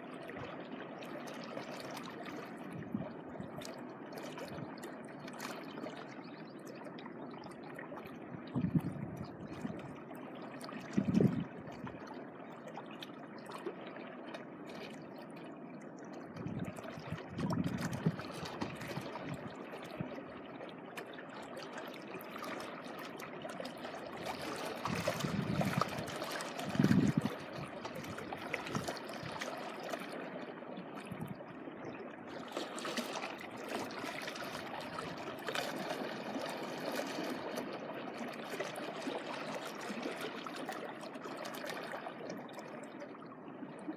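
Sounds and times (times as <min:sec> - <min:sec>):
water trickling: 0:00.2 - 0:43.2.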